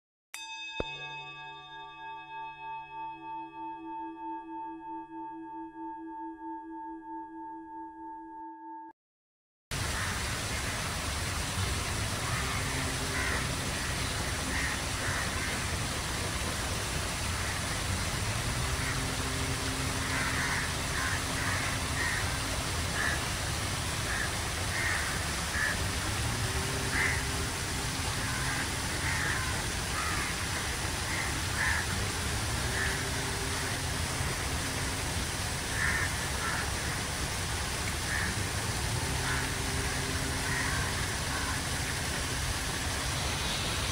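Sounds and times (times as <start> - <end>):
birds calling: 12.1 - 16.5, 19.7 - 26.0.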